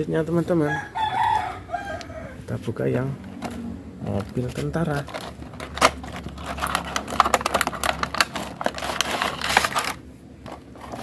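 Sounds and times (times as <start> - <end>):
packaging crinkling and rustling: 3.4 - 11.0.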